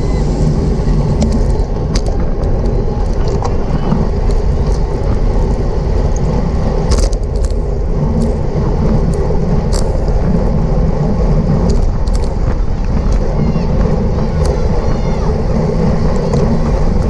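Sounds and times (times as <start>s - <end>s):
wind rumble and road noise: 0.0s - 17.0s.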